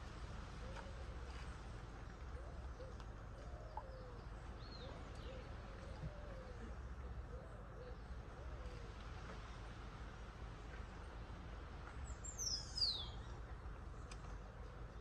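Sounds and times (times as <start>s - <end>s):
low steady rumble: 0.0s - 15.0s
faint bird calls: 0.5s - 9.6s.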